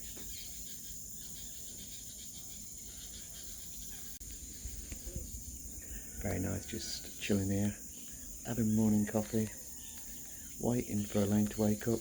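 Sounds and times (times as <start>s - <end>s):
insect chorus: 0.0s - 12.0s
birds clucking: 2.5s - 12.0s.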